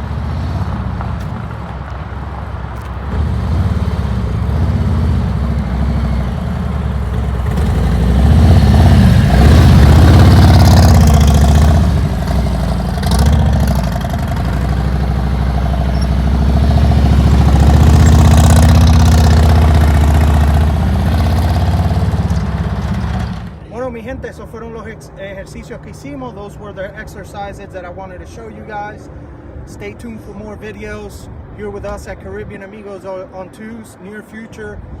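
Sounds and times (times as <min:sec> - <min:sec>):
motorcycle engine running: 0:03.1 - 0:23.6.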